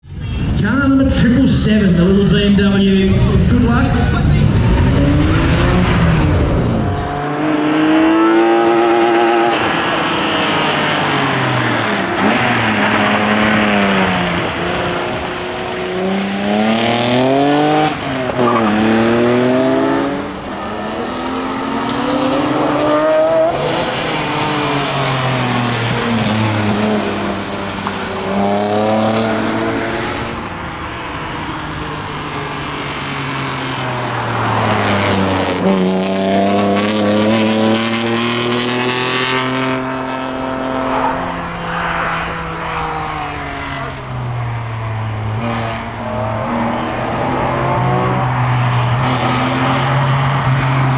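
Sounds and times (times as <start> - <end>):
car engine accelerating: 0.2 - 50.9.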